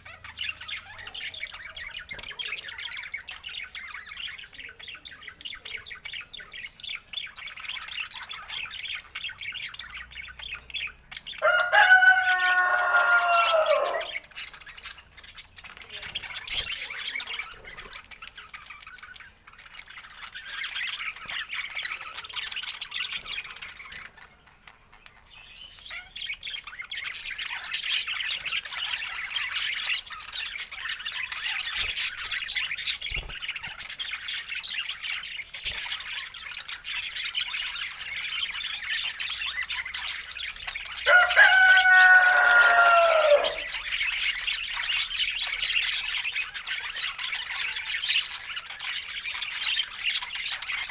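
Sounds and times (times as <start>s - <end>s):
budgerigars chattering: 0.0s - 50.9s
drawn-out squawk: 11.4s - 14.6s, 41.0s - 44.0s.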